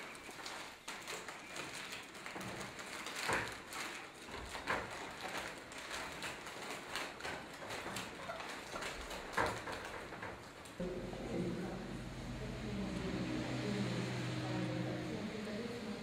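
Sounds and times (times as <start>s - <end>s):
foil wrapping crinkling: 0.0s - 10.8s.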